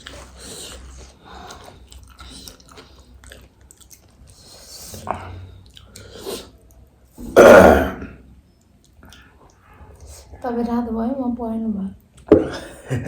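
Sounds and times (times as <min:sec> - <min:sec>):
chewing and crunching food: 0:00.0 - 0:06.9, 0:08.6 - 0:10.4.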